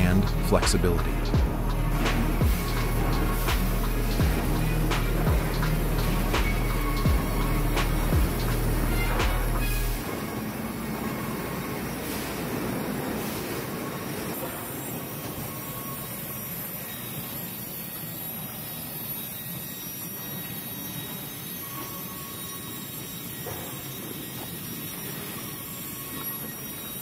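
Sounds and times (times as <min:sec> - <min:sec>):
heavy machinery rumbling: 0:00.0 - 0:19.0
faint whining tones: 0:00.0 - 0:27.0.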